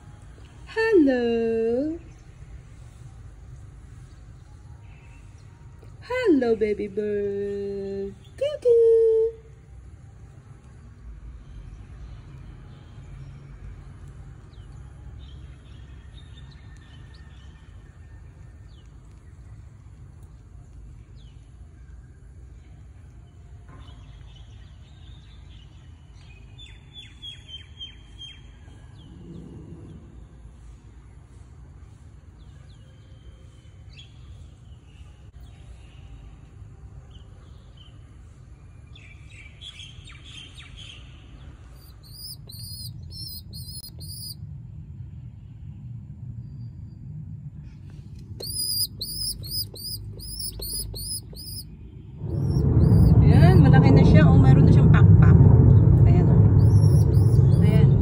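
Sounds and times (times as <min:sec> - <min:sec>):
low steady rumble: 0:00.0 - 0:26.1, 0:41.0 - 0:58.0
bird chirping: 0:39.0 - 0:44.4, 0:48.2 - 0:53.7, 0:56.5 - 0:58.0.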